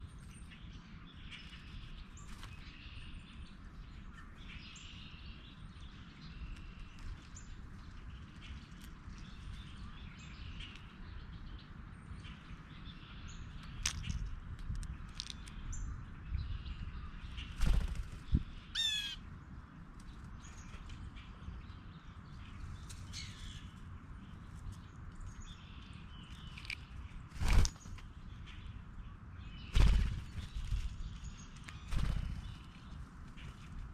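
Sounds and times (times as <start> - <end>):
low background rumble: 0.0 - 33.9
wild birds chirping: 0.0 - 33.9
faint bird chirps: 15.3 - 19.2.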